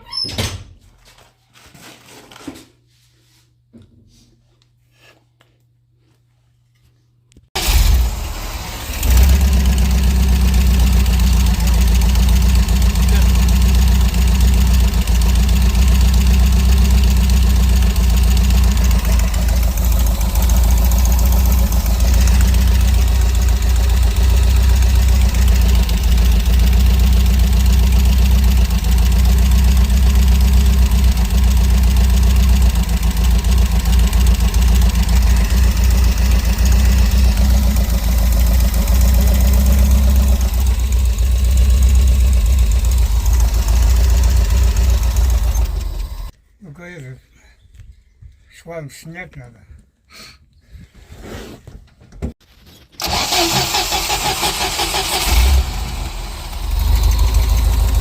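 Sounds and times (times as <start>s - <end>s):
van engine idling: 7.6s - 46.3s, 53.0s - 58.0s.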